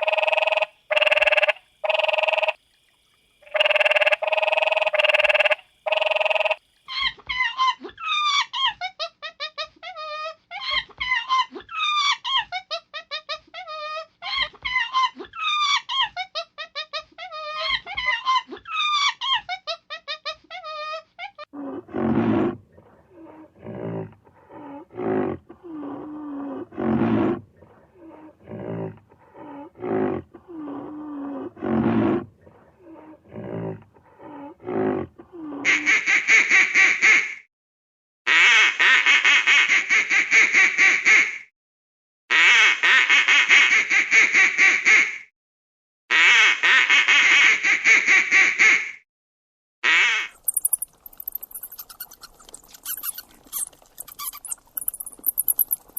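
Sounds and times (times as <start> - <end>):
duck quacking rapidly: 38.3 - 41.4, 42.3 - 45.2, 46.1 - 49.0, 49.8 - 50.5
low gliding animal calls: 50.4 - 55.9.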